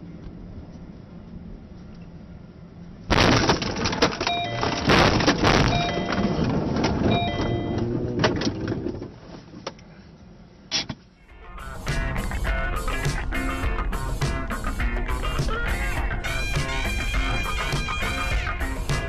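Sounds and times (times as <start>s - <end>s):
car crash impact: 3.1s - 7.1s
crunching and scraping: 3.1s - 9.5s
short tone: 4.3s - 8.0s.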